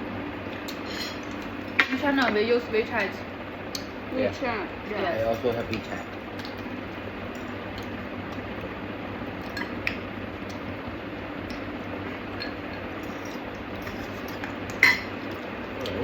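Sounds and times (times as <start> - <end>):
steady background hum: 0.0 - 16.0
utensils clinking on dishes: 5.1 - 6.6, 12.1 - 16.0.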